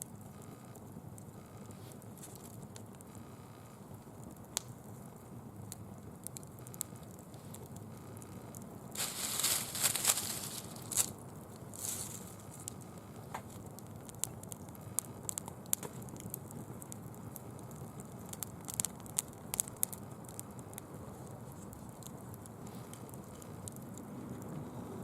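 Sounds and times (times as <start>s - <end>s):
fire popping: 0.0s - 25.0s
leaves crackling in fire: 0.0s - 25.0s
fire hissing: 1.2s - 25.0s.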